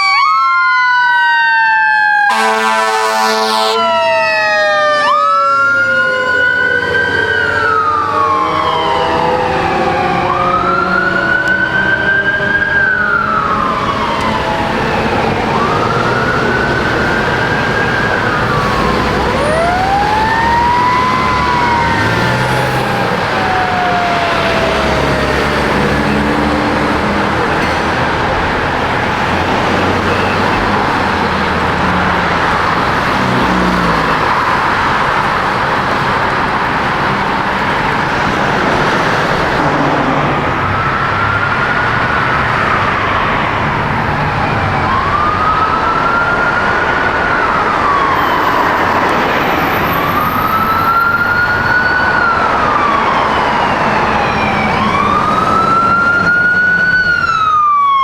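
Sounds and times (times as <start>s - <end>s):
emergency siren wailing: 0.0s - 58.0s
vehicle engine and road noise: 3.4s - 58.0s.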